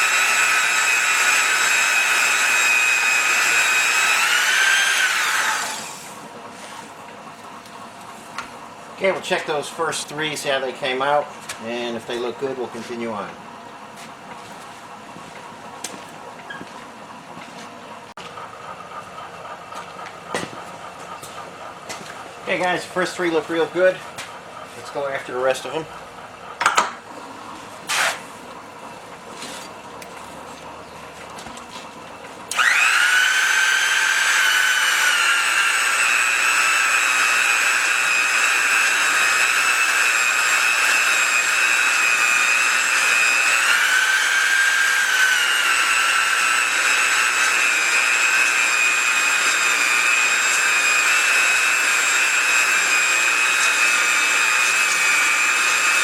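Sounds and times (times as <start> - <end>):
belt polishing machine whining: 0.0 - 6.8, 20.8 - 28.2, 32.5 - 56.0.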